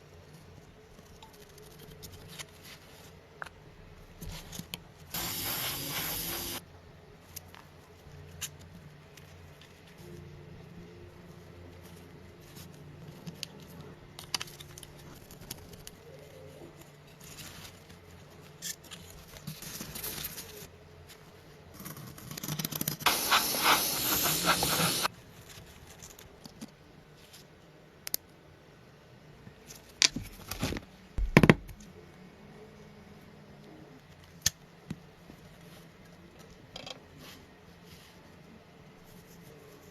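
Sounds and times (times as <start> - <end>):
steady hiss: 5.1 - 6.6, 23.0 - 25.1.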